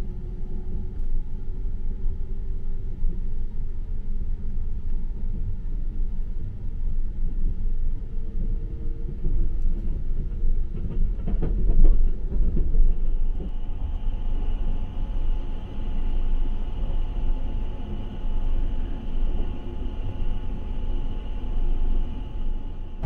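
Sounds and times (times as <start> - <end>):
faint steady whine: 0.0 - 9.9, 12.8 - 23.0
train running low rumble: 0.0 - 23.0
wheels clacking on rails: 9.0 - 15.9.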